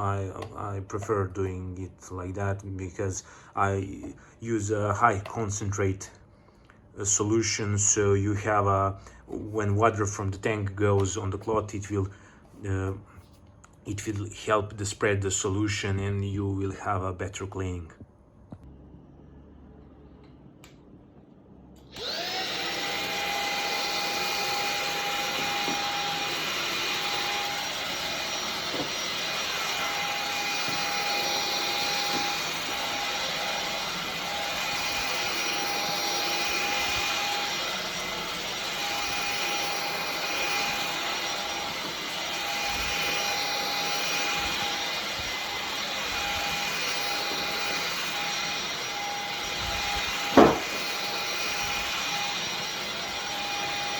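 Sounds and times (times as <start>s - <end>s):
vacuum airflow noise: 21.8s - 53.9s
vacuum motor whine: 21.8s - 53.9s.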